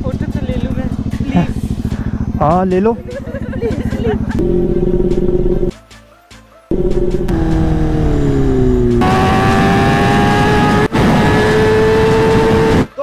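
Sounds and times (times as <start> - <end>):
motorcycle engine at high revs: 4.4 - 5.7, 6.7 - 13.0.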